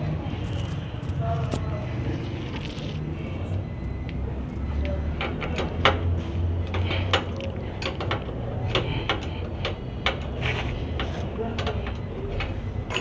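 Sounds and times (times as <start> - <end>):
steady low hum: 0.0 - 3.9.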